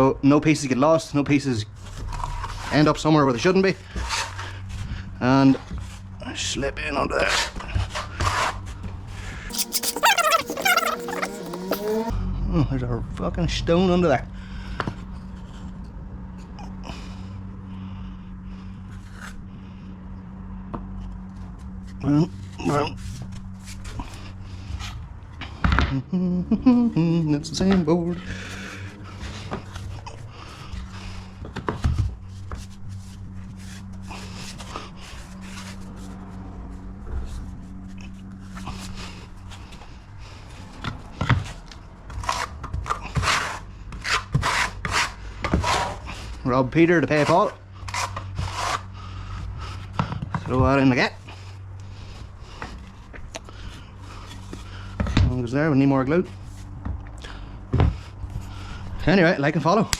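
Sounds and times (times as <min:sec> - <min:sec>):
boards scraping together: 0:09.5 - 0:12.1
floor boards scraping and tapping: 0:42.1 - 0:46.0.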